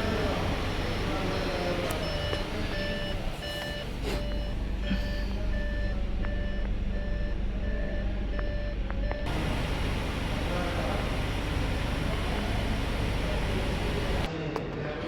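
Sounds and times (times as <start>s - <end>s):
low vehicle rumble: 0.0s - 14.3s
vehicle reversing warning beeps: 0.0s - 14.3s.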